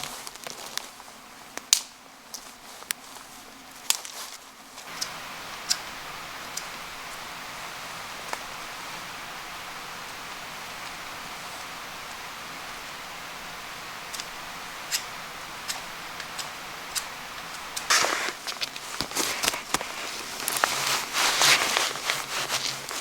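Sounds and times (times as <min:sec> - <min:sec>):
rustling and crunching: 0:00.0 - 0:05.1, 0:15.7 - 0:23.0
steady outdoor hiss: 0:00.0 - 0:23.0.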